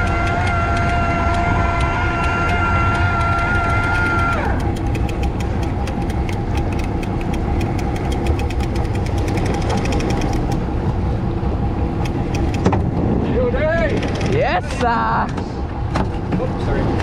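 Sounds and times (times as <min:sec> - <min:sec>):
rapid sharp clicks: 0:00.0 - 0:10.6, 0:12.0 - 0:12.9
boat engine running: 0:00.0 - 0:17.0.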